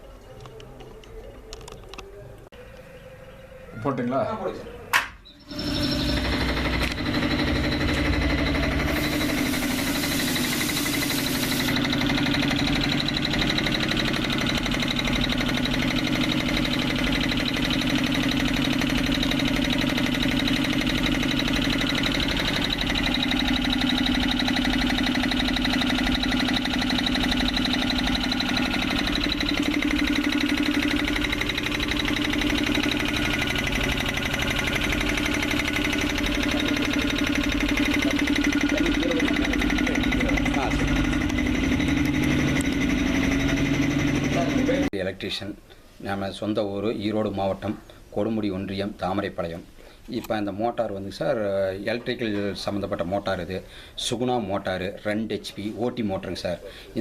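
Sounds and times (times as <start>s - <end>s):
air compressor running: 5.4s - 45.0s.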